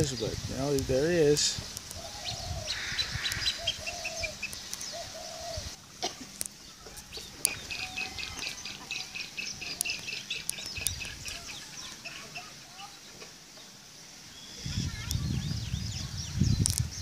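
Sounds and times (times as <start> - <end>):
low arched bird calls: 0.0 - 17.0
high bird chirps: 1.9 - 5.8, 6.5 - 13.2.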